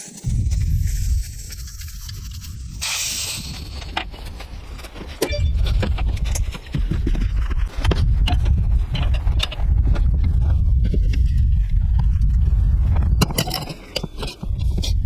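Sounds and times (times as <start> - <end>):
low rumble: 0.2 - 13.4
short hiss: 2.8 - 3.8
metallic clinking and knocking: 13.2 - 15.0.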